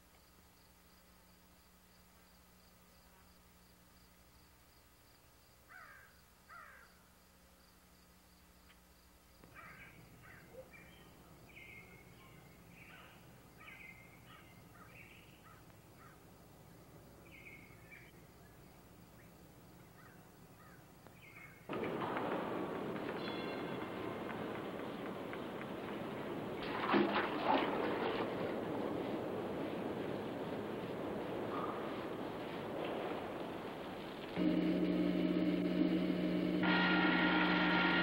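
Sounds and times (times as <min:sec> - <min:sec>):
faint birds calling: 0:09.4 - 0:16.3
low steady hum: 0:34.1 - 0:38.0.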